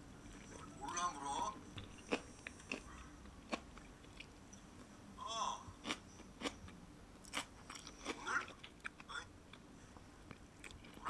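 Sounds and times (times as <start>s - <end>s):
crunching and chewing bean sprouts: 2.0s - 4.3s, 5.8s - 6.6s, 7.2s - 9.1s.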